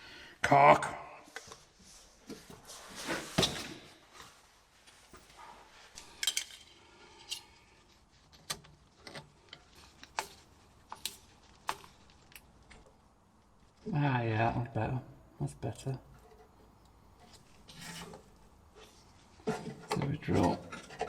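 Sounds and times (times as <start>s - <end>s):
metal parts and tools clinking: 6.0s - 7.6s.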